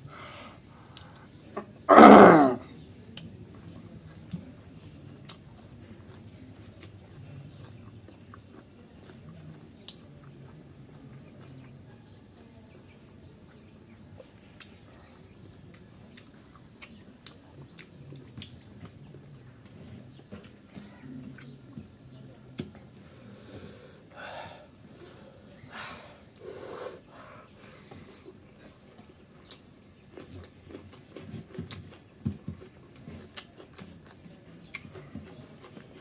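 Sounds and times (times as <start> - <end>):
person chewing with wet mouth sounds: 3.1 - 11.9, 13.5 - 22.9, 27.6 - 36.0.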